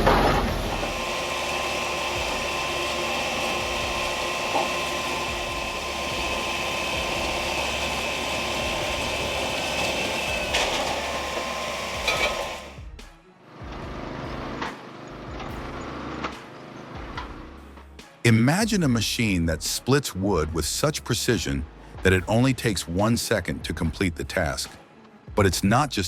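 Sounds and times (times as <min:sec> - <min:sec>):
quieter machine running: 0:00.0 - 0:12.8
wood-processing machine whining: 0:00.0 - 0:12.8.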